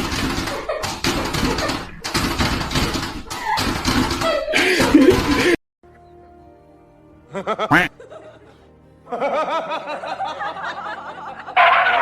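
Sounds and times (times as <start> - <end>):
background music: 4.6 - 12.0
person laughing: 7.3 - 8.4.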